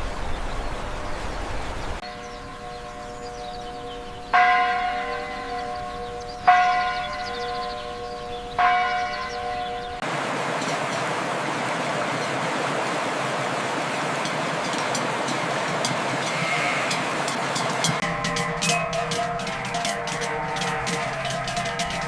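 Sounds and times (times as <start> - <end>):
large bell tolling: 2.0 - 10.0, 16.2 - 22.0
steady rushing noise: 10.0 - 22.0.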